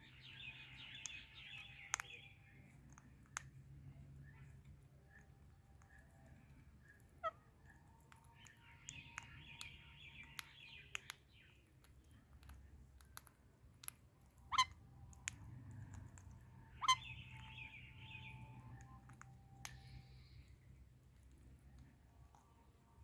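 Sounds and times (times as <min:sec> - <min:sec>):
parrots chattering: 0:14.5 - 0:14.8, 0:16.7 - 0:18.4
loud sharp parrot calls: 0:16.8 - 0:17.5.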